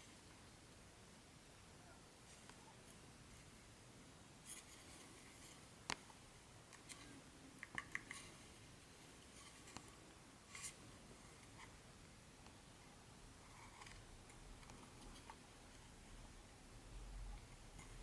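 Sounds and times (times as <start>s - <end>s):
small clicks and taps: 5.8s - 6.1s, 6.7s - 8.3s.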